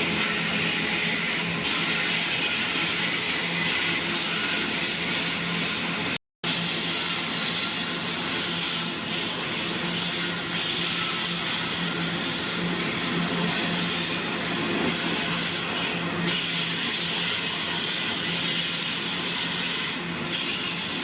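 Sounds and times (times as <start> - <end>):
train rushing by: 0.0 - 21.0.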